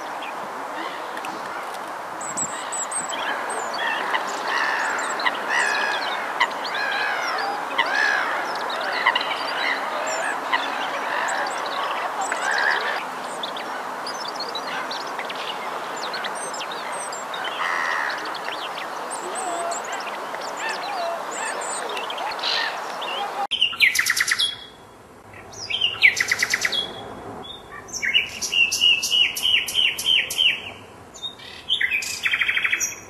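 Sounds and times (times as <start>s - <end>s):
bird calls: 0.0s - 33.0s
high bird chirps: 16.0s - 33.0s.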